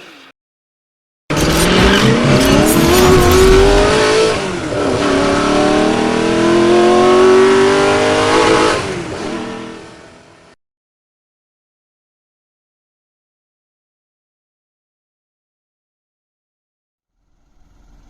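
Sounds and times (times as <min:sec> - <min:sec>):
car engine accelerating hard: 0:01.3 - 0:10.5.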